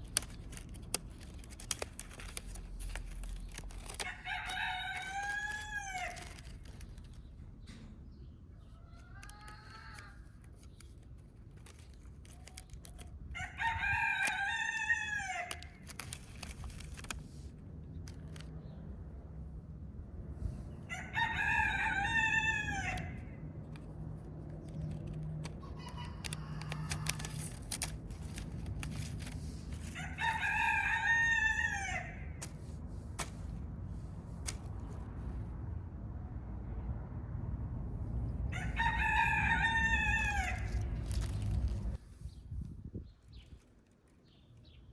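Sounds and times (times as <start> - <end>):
rooster crowing: 4.0 - 6.2, 20.9 - 23.2, 29.9 - 32.3, 38.5 - 40.8
faint rooster crows: 4.0 - 6.5, 13.3 - 15.7, 20.8 - 23.4, 25.6 - 27.5, 29.8 - 32.4, 38.5 - 40.9.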